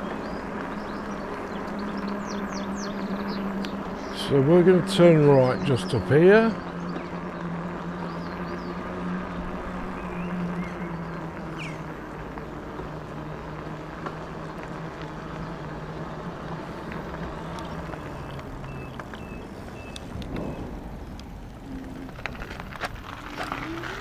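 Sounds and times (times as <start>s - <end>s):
tyre rumble: 10.1s - 24.0s
wind noise: 16.6s - 24.0s.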